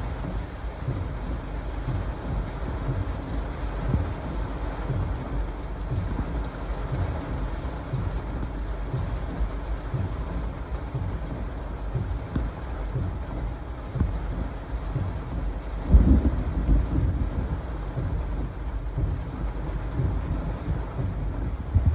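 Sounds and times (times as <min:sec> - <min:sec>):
heavy rain: 0:00.0 - 0:21.9
low thunder rumbles: 0:00.0 - 0:21.9
strong gusty wind: 0:20.8 - 0:21.9.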